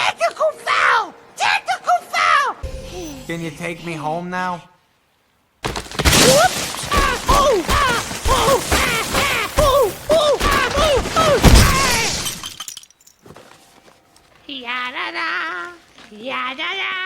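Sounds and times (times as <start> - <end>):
thuds and crash-like knocks: 5.6 - 12.5.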